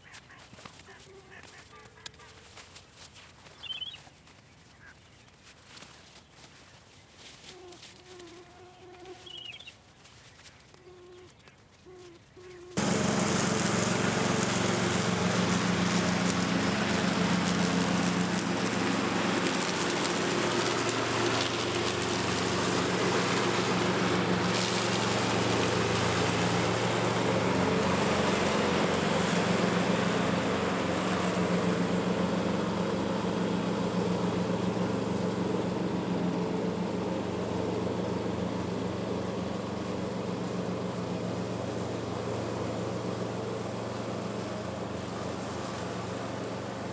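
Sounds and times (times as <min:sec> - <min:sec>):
lawn mower engine running: 0:12.8 - 0:46.9.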